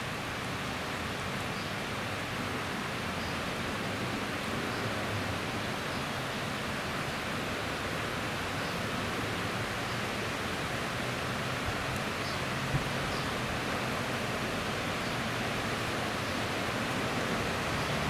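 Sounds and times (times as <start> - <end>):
heavy rain falling: 10.6 - 18.0.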